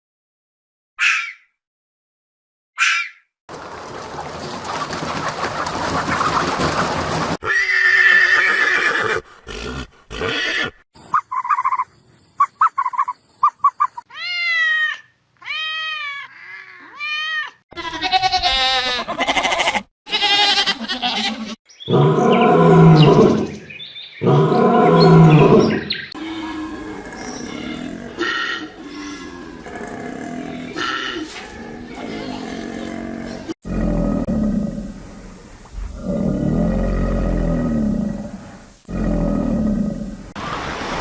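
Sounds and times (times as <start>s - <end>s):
animal calls: 24.2s - 33.6s.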